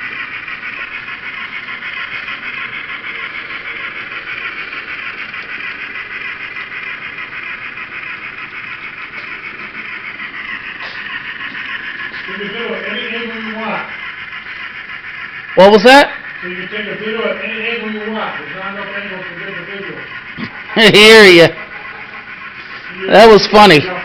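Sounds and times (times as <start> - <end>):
model train running on track: 0.0 - 24.0.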